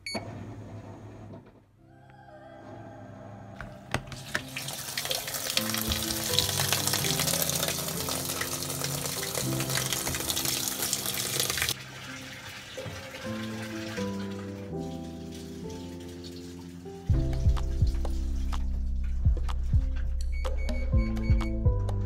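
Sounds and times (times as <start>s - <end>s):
background music: 1.8s - 22.0s
water running: 3.6s - 18.7s.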